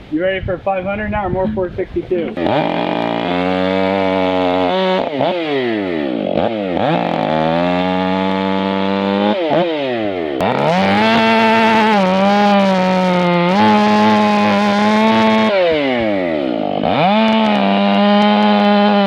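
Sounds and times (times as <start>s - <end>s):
chainsaw revving: 2.3s - 19.0s.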